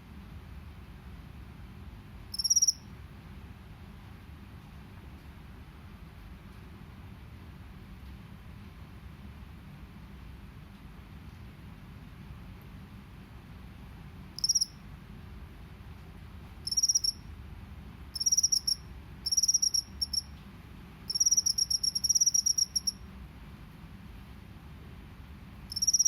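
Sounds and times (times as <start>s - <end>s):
cricket chirping: 2.3s - 2.9s, 14.4s - 14.8s, 16.6s - 17.3s, 18.1s - 20.3s, 21.1s - 23.0s, 25.7s - 26.0s.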